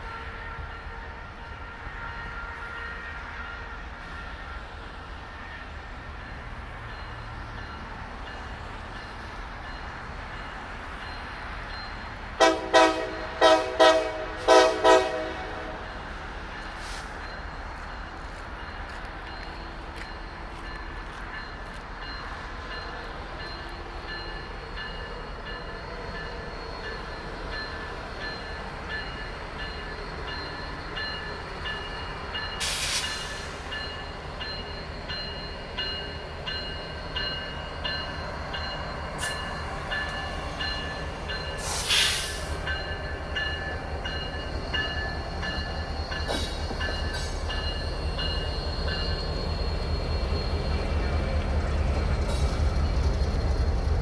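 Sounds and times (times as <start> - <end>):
freight train rumble: 0.0 - 54.0
pulsing high ringing tone: 42.7 - 51.9.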